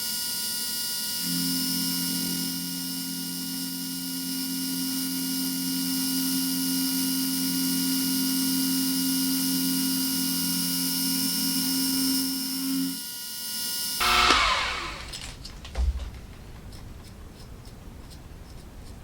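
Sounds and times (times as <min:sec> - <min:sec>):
milling machine cutting metal: 0:00.2 - 0:15.3
high whine: 0:01.1 - 0:13.0, 0:14.0 - 0:15.2.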